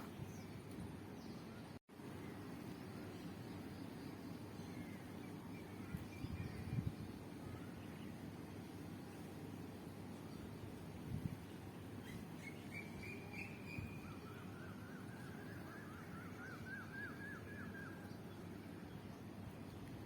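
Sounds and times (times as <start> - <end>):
songbird singing: 0.0 - 8.3, 10.0 - 20.0.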